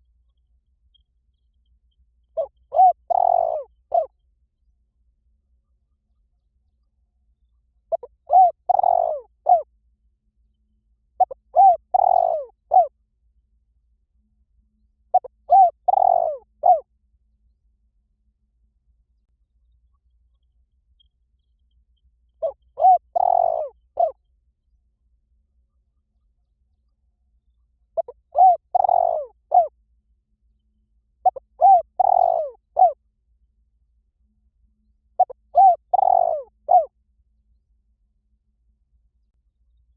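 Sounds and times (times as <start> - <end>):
dove cooing: 2.4 - 4.1, 7.9 - 9.7, 11.2 - 12.9, 15.1 - 16.9, 22.4 - 24.2, 28.0 - 29.7, 31.2 - 33.0, 35.2 - 36.9.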